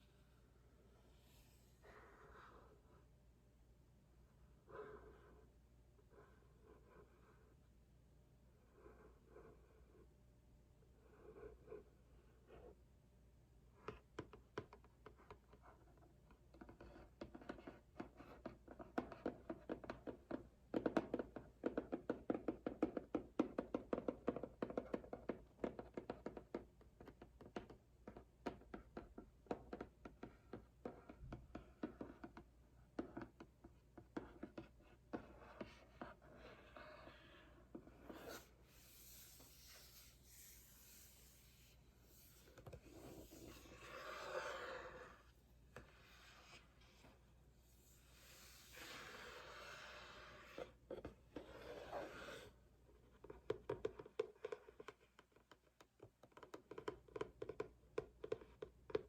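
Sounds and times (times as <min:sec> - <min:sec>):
fingers tapping on cardboard box: 0:16.5 - 0:36.1, 0:53.2 - 0:59.0
scratching on cardboard: 0:34.2 - 0:47.2, 0:48.1 - 0:52.5.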